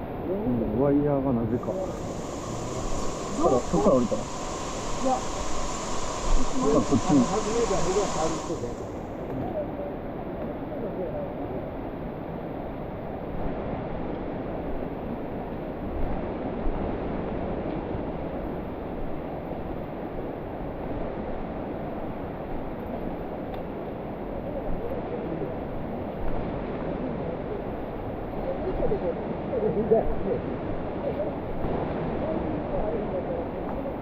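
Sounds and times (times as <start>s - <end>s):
waterfall rushing: 1.6s - 9.0s.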